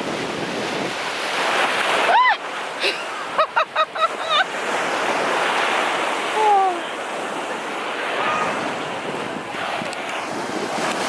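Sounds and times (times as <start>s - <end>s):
wind buffeting microphone: 0.0s - 2.4s, 7.2s - 11.0s
ocean surf on beach: 0.0s - 11.0s.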